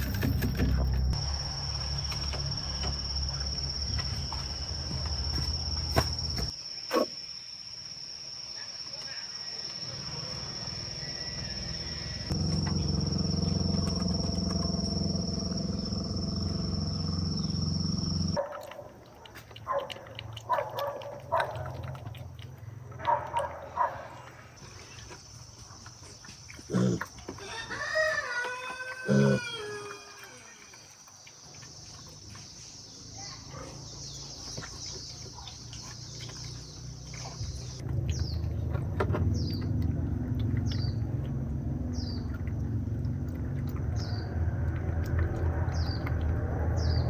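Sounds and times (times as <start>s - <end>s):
low hum: 11.0s - 18.4s
rooster crowing: 27.4s - 30.7s.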